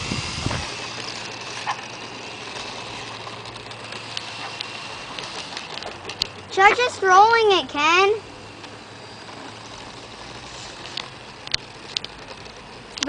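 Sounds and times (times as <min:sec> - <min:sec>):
wind noise on microphone: 0:00.0 - 0:01.0
model airplane motor whine: 0:00.0 - 0:13.0.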